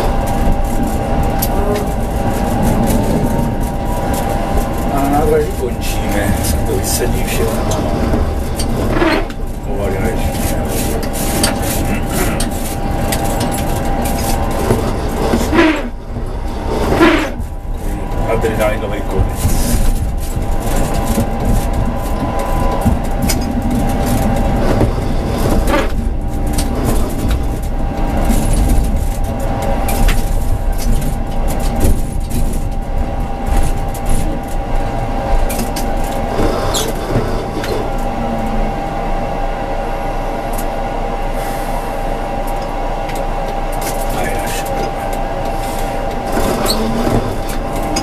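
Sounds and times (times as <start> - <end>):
constant whine: 0.0 - 48.0
tram rumble: 0.0 - 48.0.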